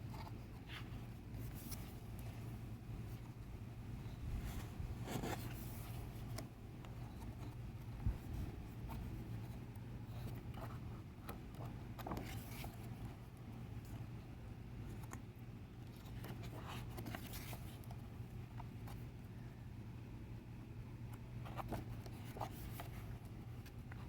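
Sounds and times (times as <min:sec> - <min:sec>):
paper pages rustling: 0:00.0 - 0:03.4, 0:04.5 - 0:13.3, 0:15.9 - 0:18.0
steady low hum: 0:00.0 - 0:24.0.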